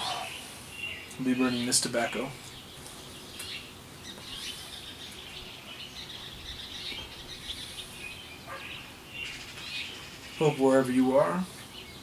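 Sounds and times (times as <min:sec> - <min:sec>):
faint steady hiss: 0:00.0 - 0:12.0
small songbirds chirping: 0:00.0 - 0:12.0.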